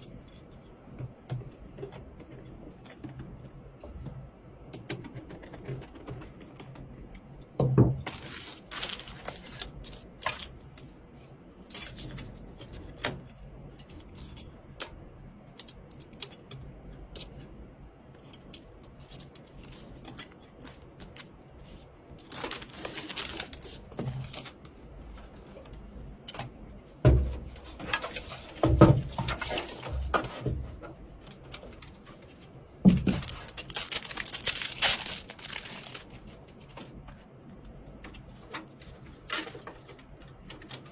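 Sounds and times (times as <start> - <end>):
packaging rustling and tearing: 8.1 - 10.7, 22.2 - 24.6, 32.9 - 37.0
clicks and knocks of parts: 11.7 - 40.9.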